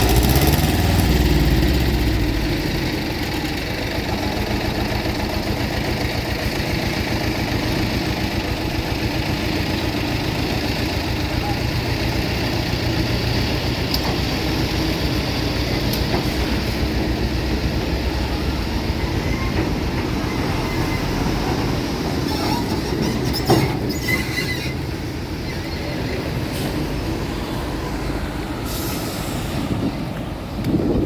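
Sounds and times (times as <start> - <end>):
heavy vehicle rumble: 0.0 - 31.0
brief squeal: 22.3 - 26.8.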